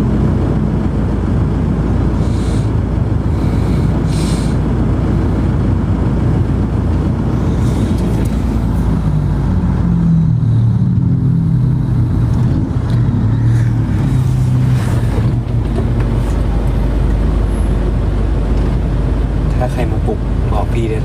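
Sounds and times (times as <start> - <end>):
engine hum: 0.0 - 21.0
moving vehicle rumble: 0.0 - 21.0.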